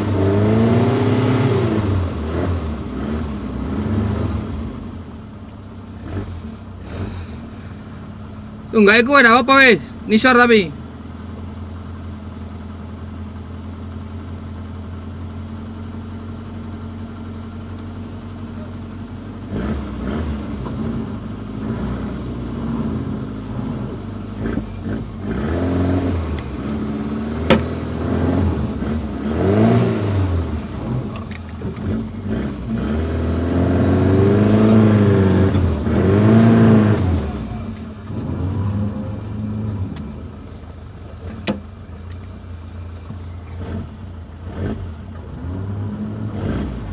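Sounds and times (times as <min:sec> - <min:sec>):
car engine idling and revving: 0:00.0 - 0:46.9.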